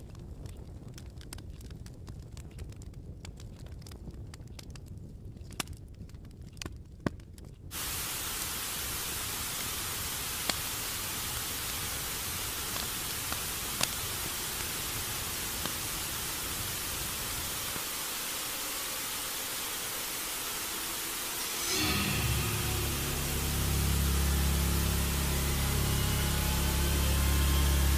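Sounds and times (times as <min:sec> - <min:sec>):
static hiss: 0:07.7 - 0:27.9
low rumble: 0:21.4 - 0:27.9.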